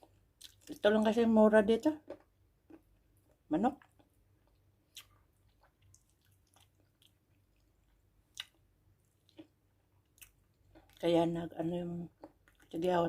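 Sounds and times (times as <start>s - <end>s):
person chewing food: 0.0s - 0.8s, 2.1s - 11.0s, 12.2s - 12.7s.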